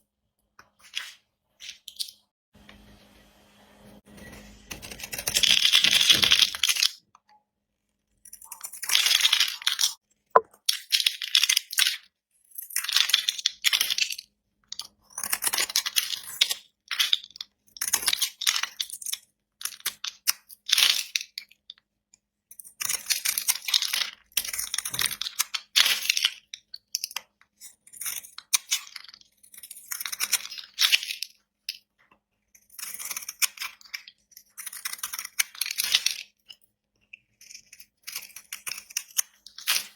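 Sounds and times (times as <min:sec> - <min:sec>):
blade scraping through soap: 0:32.5 - 0:39.9.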